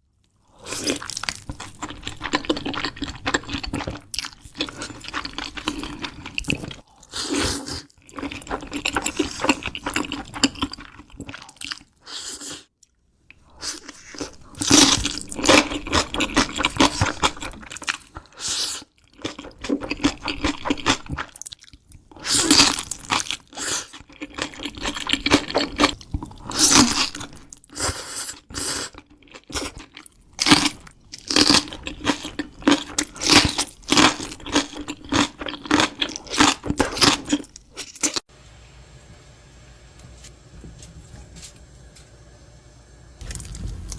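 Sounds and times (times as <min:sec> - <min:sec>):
chewing: 0:00.7 - 0:11.9, 0:13.4 - 0:38.2, 0:43.2 - 0:43.9
crunchy bites of crisp food: 0:13.6 - 0:38.2, 0:43.2 - 0:43.9.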